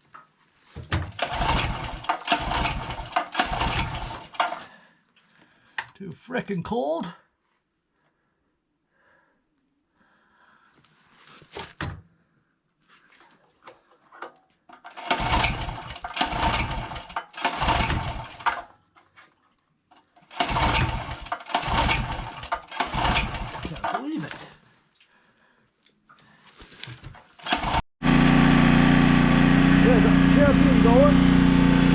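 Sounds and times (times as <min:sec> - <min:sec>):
generator recoil pull cranking: 0:01.1 - 0:04.7, 0:14.7 - 0:18.7, 0:20.0 - 0:24.5, 0:27.2 - 0:27.8.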